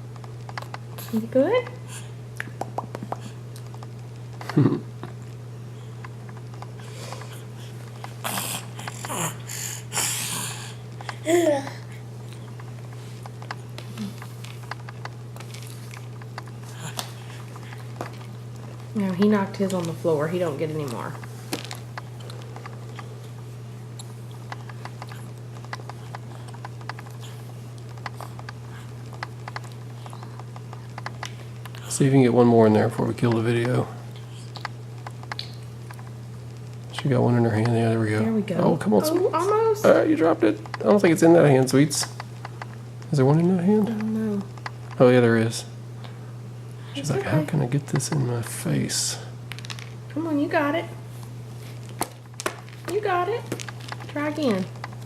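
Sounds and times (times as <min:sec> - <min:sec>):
steady low hum: 0:00.0 - 0:55.0
baby grunting: 0:08.2 - 0:11.9.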